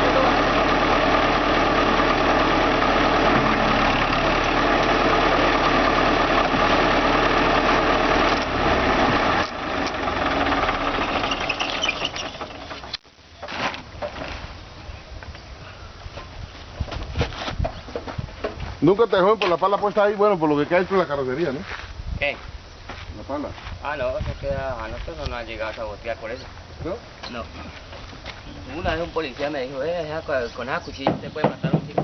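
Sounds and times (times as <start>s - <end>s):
heavy diesel engine running: 0.0s - 13.0s
scattered knocks: 31.0s - 32.0s.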